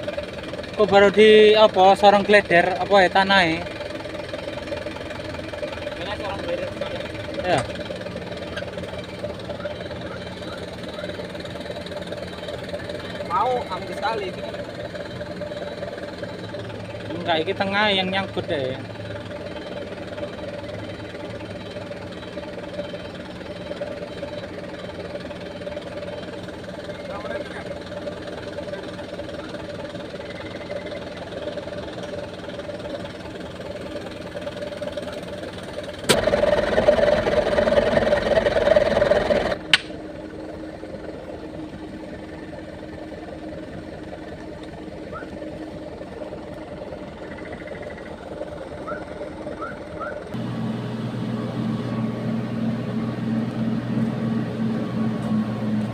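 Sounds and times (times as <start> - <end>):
diesel engine running: 0.0 - 55.9
engine switch click: 39.7 - 40.0.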